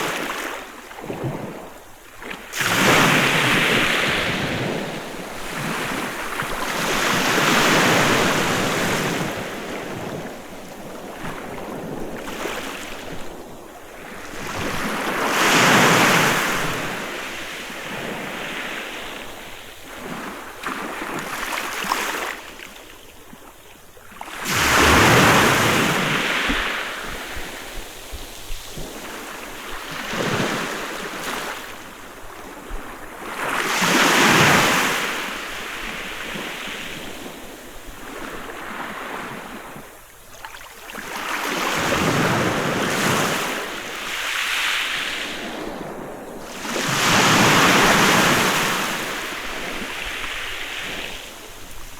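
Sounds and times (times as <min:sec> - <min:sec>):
sea waves breaking on beach: 0:00.0 - 0:13.4, 0:24.2 - 0:51.9.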